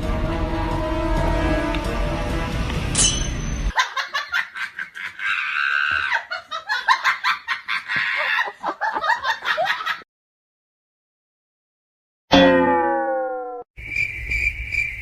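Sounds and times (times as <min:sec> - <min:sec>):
background music: 0:00.0 - 0:03.7
person laughing in bursts: 0:03.7 - 0:10.0.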